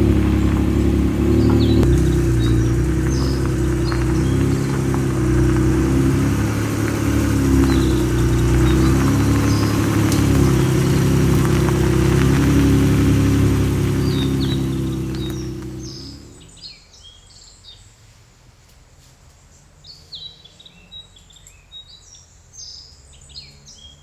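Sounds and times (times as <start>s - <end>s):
car engine droning: 0.0s - 16.6s
faint birds chirping: 0.0s - 18.0s.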